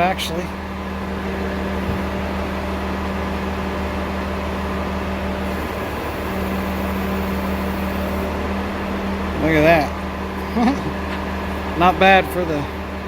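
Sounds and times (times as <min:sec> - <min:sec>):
heavy equipment engine idling: 0:00.0 - 0:13.0.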